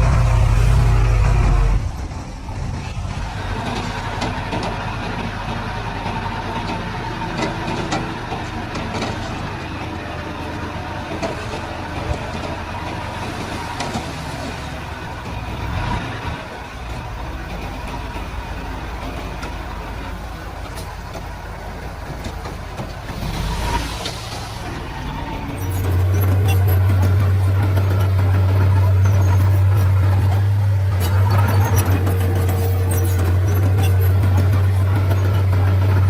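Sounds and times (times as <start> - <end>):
bulldozer diesel engine running: 0.0 - 36.0.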